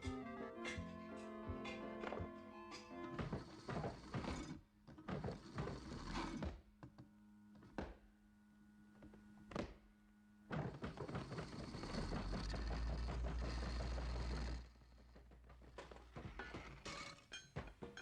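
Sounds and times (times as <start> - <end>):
knocks and clattering: 10.5 - 18.0.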